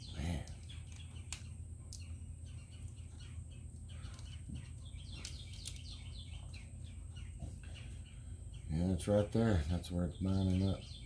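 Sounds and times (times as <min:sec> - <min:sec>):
birds chirping: 0:00.0 - 0:11.0
steady low hum: 0:00.0 - 0:11.0.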